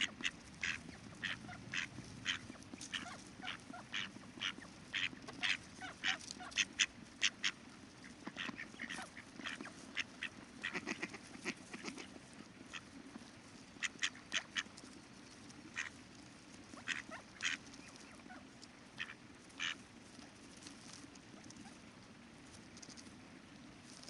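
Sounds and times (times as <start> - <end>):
ducks quacking: 0.0 - 14.9, 15.6 - 16.0, 16.6 - 19.8.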